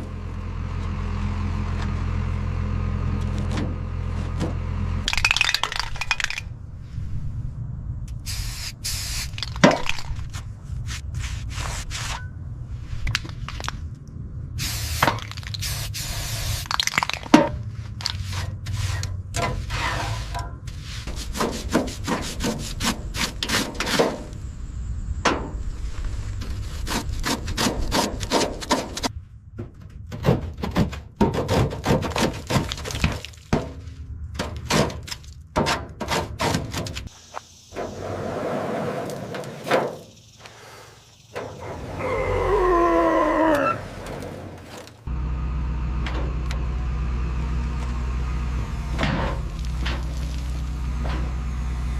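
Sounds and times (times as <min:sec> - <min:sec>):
scraping and rubbing strokes: 0:10.2 - 0:13.7, 0:17.7 - 0:24.3, 0:25.7 - 0:29.1
steady low hum: 0:17.5 - 0:27.6.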